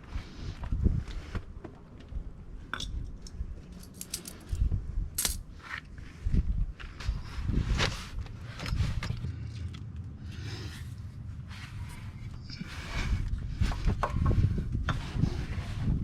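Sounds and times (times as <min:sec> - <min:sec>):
low rumbling handling noise: 0:02.9 - 0:05.6
metal tools clinking: 0:03.7 - 0:04.6, 0:05.2 - 0:05.4.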